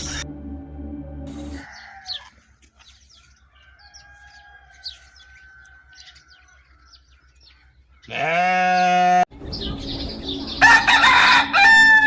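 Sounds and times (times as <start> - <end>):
rooster crowing: 1.4 - 2.3, 3.5 - 6.4, 10.6 - 12.0
small birds chirping: 1.6 - 10.8.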